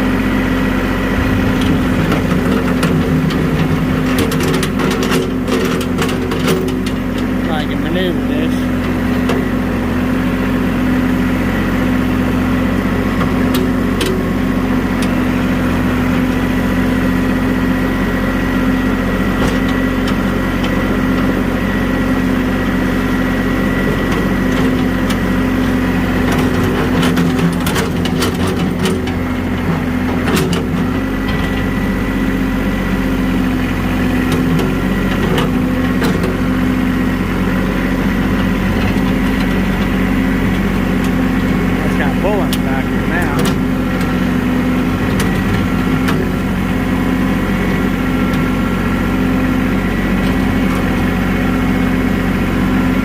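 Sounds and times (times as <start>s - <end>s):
vehicle engine running: 0.0s - 53.0s
sharp knocks: 1.1s - 5.3s.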